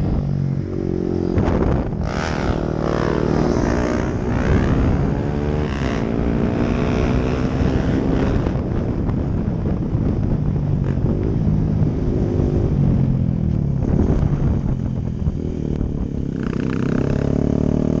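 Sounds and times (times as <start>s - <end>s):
motorcycle engine revving past: 0.0s - 8.6s.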